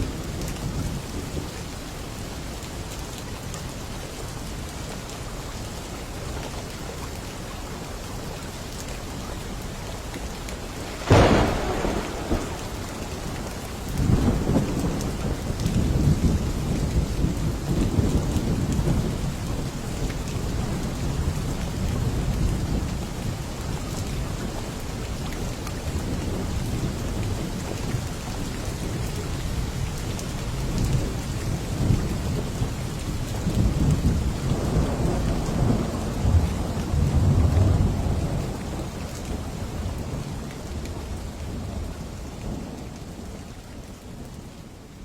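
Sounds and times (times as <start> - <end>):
heavy rain: 0.0 - 45.0
low rolling thunder: 10.6 - 24.6, 25.9 - 43.4.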